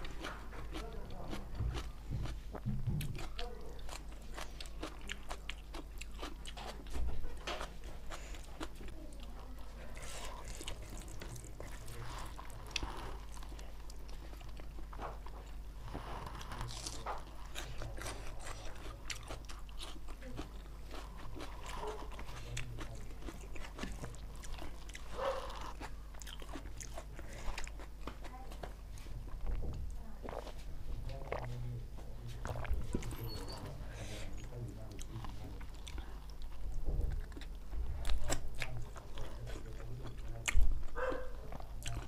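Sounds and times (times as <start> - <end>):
chewing with wet mouth clicks: 0.0 - 9.3, 16.6 - 28.7, 30.2 - 31.6, 32.4 - 33.7, 34.4 - 42.0
low steady hum: 0.0 - 42.0.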